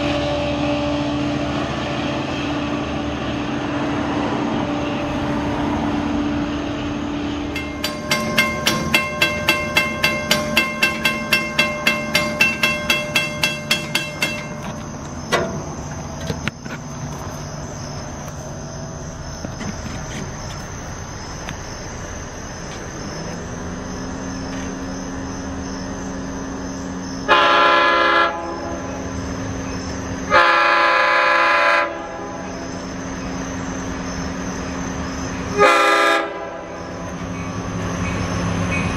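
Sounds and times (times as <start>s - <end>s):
bell ringing rapidly: 7.6s - 14.8s
train horn blasts: 27.3s - 29.0s, 30.3s - 32.5s, 35.5s - 36.8s.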